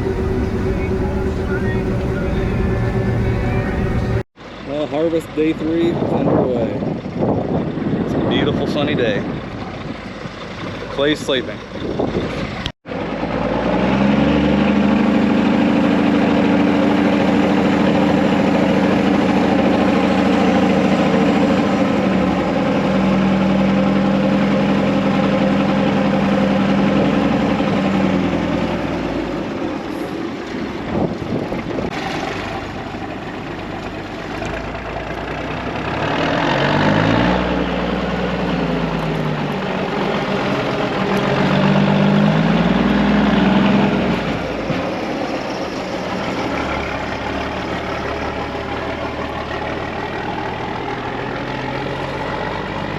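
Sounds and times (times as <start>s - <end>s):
heavy diesel engine running: 0.0s - 4.3s, 12.9s - 30.7s, 32.7s - 52.9s.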